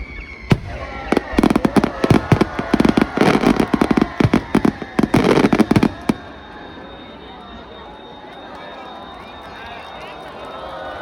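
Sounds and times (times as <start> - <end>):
fireworks banging and crackling: 0.1 - 6.7.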